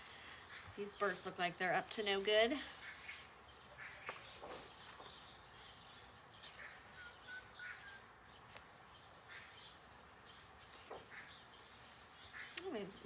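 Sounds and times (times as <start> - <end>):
pages turning: 4.1 - 5.3, 8.5 - 9.1.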